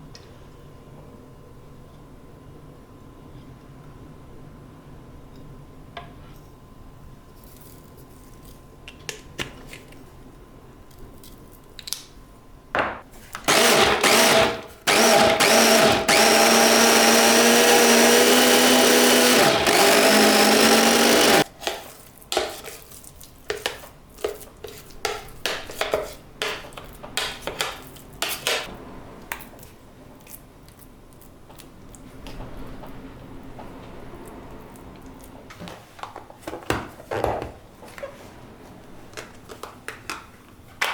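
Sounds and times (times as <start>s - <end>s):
electric blender motor: 13.5s - 21.5s.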